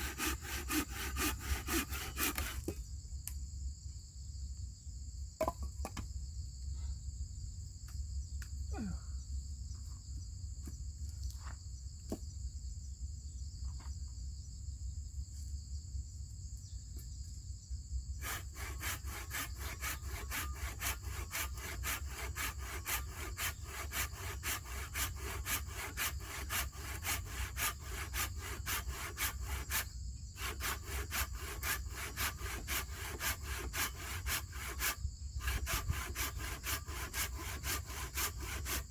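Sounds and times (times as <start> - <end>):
hand saw cutting wood: 0.0 - 2.8, 18.2 - 38.9
high insect buzz: 0.0 - 3.3, 16.2 - 38.9.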